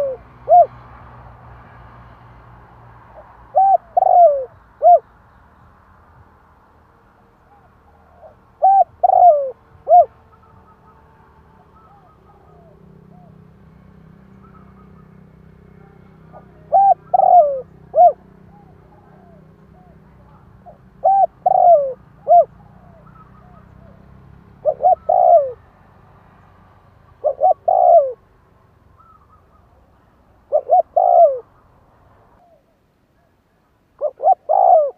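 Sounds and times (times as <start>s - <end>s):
dove cooing: 0.0s - 0.9s, 3.2s - 5.0s, 7.4s - 13.6s, 14.2s - 25.7s, 27.1s - 28.3s, 29.0s - 31.6s, 34.0s - 34.9s.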